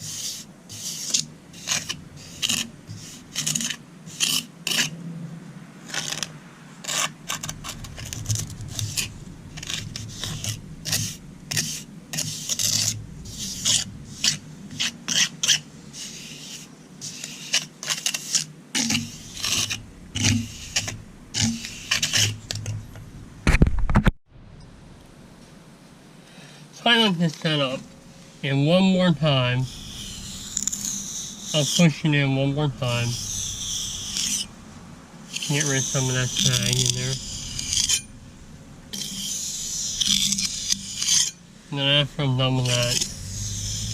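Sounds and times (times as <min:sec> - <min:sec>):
trowel scraping wet cement: 0:00.0 - 0:04.9, 0:05.8 - 0:22.8, 0:29.4 - 0:34.5, 0:35.3 - 0:38.1, 0:38.9 - 0:41.4, 0:42.0 - 0:43.9.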